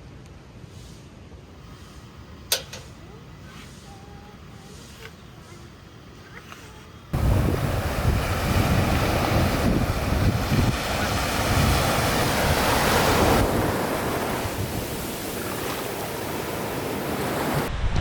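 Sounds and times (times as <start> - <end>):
sea waves washing ashore: 7.1 - 17.9
wind rumbling on microphone: 7.1 - 18.0.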